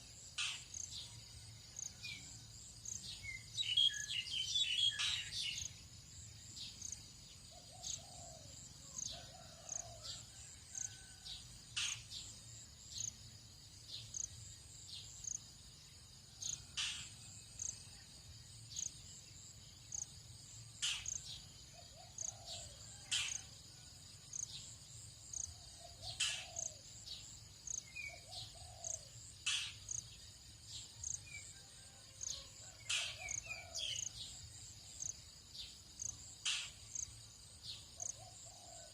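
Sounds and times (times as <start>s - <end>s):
lower softer bird calls: 25.4s - 30.0s.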